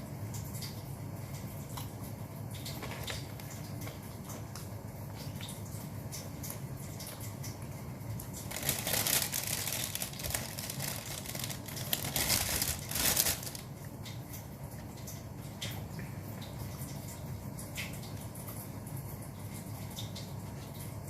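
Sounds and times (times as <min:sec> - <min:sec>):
low steady hum: 0:00.0 - 0:21.0
food packaging crinkling: 0:02.8 - 0:03.6, 0:08.3 - 0:13.8.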